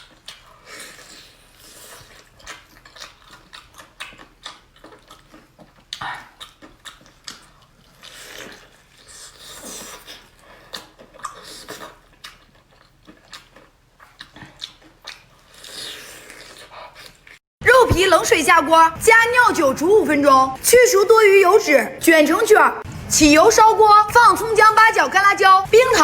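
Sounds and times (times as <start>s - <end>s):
person chewing crunchy chicken: 0.0s - 17.4s.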